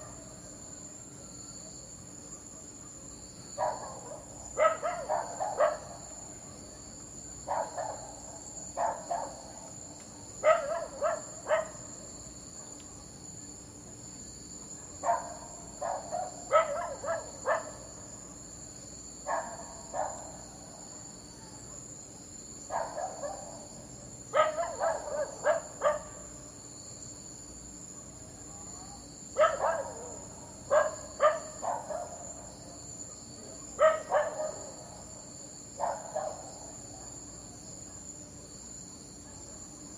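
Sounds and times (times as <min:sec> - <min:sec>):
crickets trilling: 0:00.0 - 0:39.9
dog barking: 0:03.6 - 0:06.0, 0:07.4 - 0:09.6, 0:10.4 - 0:11.9, 0:14.8 - 0:18.4, 0:19.2 - 0:20.4, 0:22.7 - 0:23.7, 0:24.3 - 0:26.3, 0:29.4 - 0:32.4, 0:33.0 - 0:35.0, 0:35.8 - 0:38.2, 0:39.2 - 0:39.8.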